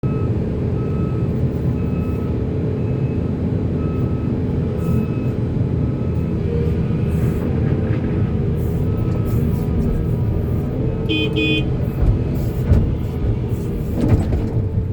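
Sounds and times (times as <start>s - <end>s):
heavy diesel machinery rumbling: 0.0s - 14.9s
high alarm beeps: 11.1s - 11.6s.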